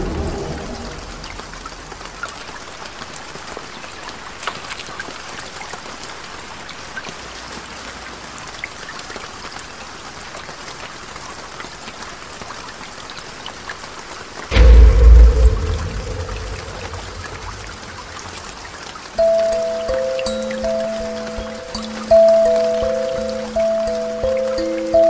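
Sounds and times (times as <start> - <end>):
steady water hiss: 15.6 - 25.0.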